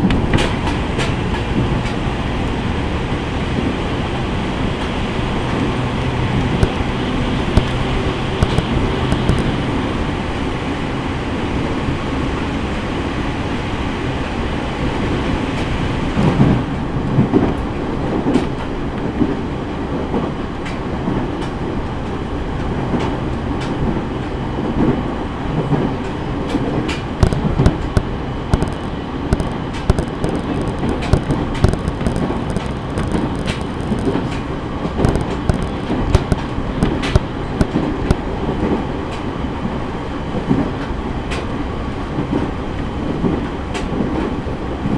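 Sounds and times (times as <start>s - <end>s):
track clicks and knocks: 0.0s - 2.1s, 4.8s - 9.8s, 25.7s - 39.3s
train wheels rumbling on rail: 0.0s - 44.9s.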